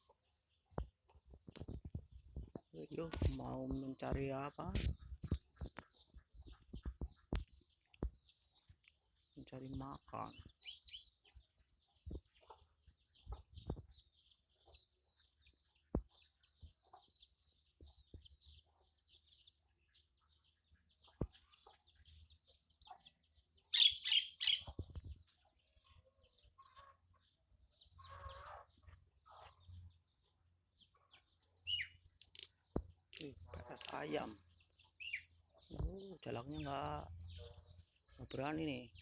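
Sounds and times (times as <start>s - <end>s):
chicks peeping: 0.0s - 39.0s
loud sharp chicken calls: 28.0s - 29.6s.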